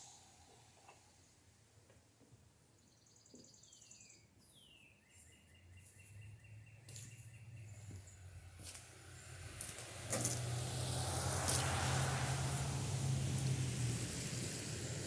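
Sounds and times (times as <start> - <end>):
faint bird song: 2.5 - 8.5.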